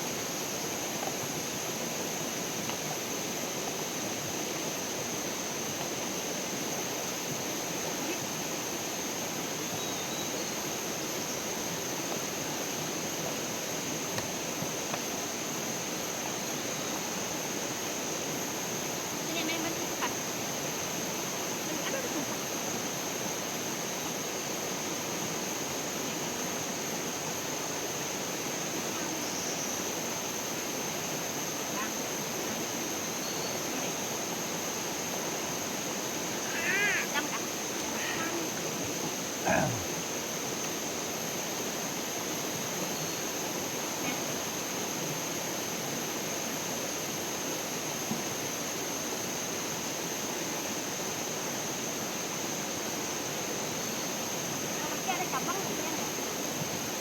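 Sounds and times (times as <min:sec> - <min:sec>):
high-pitched hiss: 0:00.0 - 0:57.0
flowing water rushing: 0:29.8 - 0:57.0
even rushing hiss: 0:33.7 - 0:42.3.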